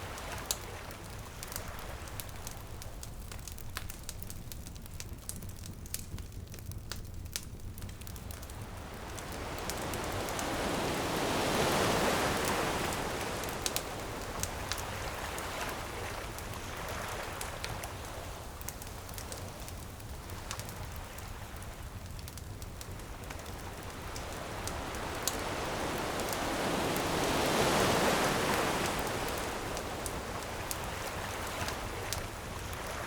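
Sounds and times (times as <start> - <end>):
bonfire crackling and popping: 0.0 - 33.0
ocean wave: 8.6 - 18.4, 23.1 - 33.0.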